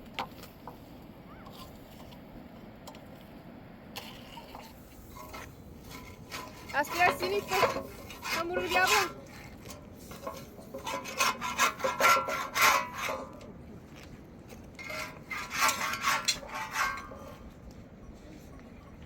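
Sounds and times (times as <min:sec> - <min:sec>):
squeak of friction against basin: 0:04.2 - 0:13.3, 0:14.8 - 0:17.4
dough kneaded and scraped by hand: 0:05.0 - 0:13.2.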